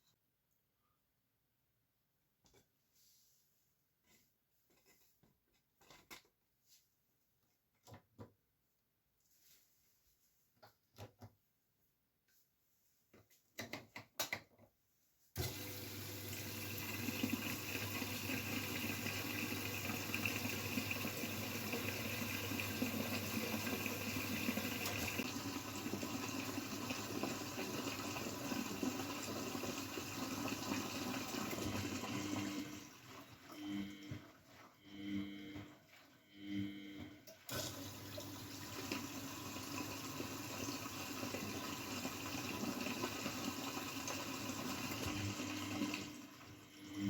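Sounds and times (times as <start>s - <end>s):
water rushing into washing machine: 15.4s - 36.3s, 37.1s - 47.0s.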